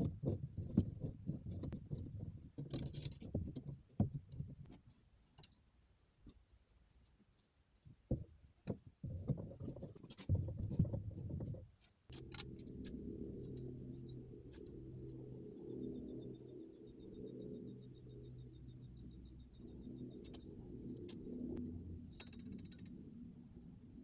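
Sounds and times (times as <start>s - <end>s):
clicks and rustling of parts: 0.0s - 5.6s, 8.6s - 15.2s
steady low hum: 12.1s - 24.0s.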